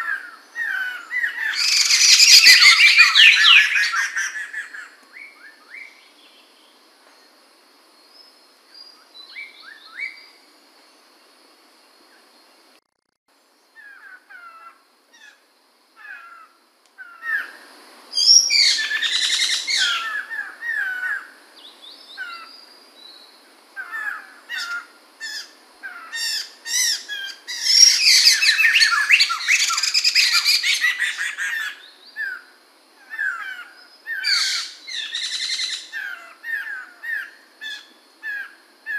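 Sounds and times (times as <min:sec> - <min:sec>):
bird rapid varied song: 0:00.0 - 0:07.4, 0:13.5 - 0:38.9
bird chirps: 0:18.2 - 0:23.4.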